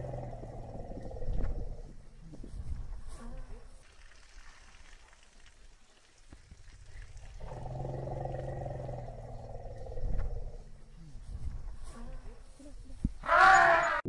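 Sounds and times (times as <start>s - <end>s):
elephant roaring call: 0.0s - 1.5s, 7.4s - 11.2s, 13.2s - 14.0s.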